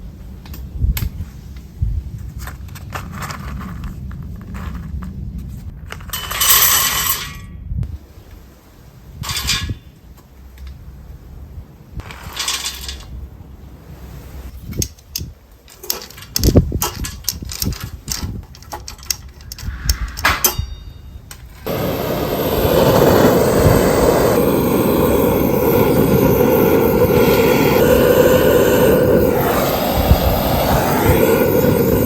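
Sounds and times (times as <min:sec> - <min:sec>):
loud steady rushing noise: 0:21.6 - 0:32.0.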